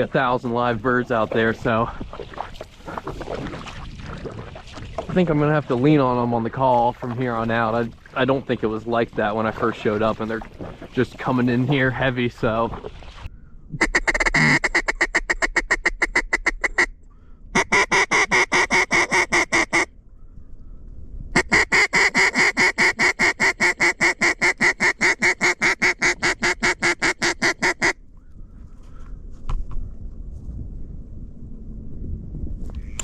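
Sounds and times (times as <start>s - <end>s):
duck call quacking: 13.8s - 16.9s, 17.6s - 19.9s, 21.4s - 28.0s.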